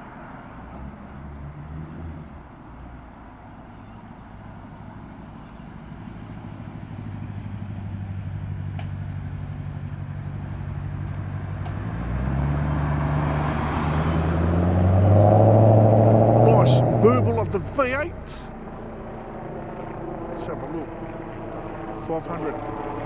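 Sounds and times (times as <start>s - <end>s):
car engine burbling at low revs: 5.6s - 23.0s.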